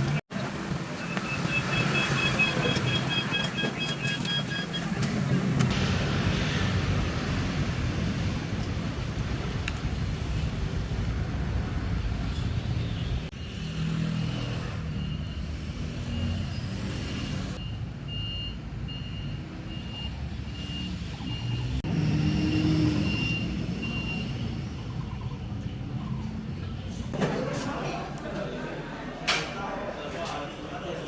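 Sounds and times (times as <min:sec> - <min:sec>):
high electronic beeps: 0:01.0 - 0:04.9.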